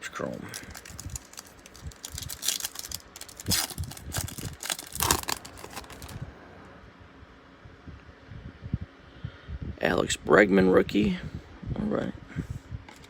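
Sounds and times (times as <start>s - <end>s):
faint handling of wrapper: 0.1s - 6.2s
card pack wrapper tearing: 0.3s - 6.2s.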